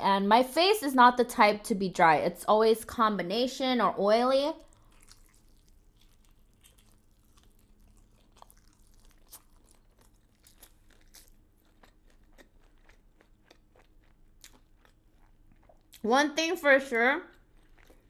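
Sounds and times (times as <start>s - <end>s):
chewing crunchy food: 4.5s - 16.1s, 17.2s - 18.0s.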